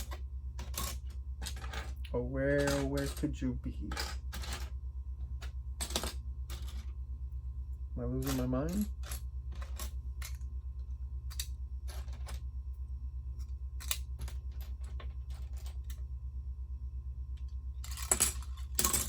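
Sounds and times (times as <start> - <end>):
low pulsing hum: 0.0 - 19.0.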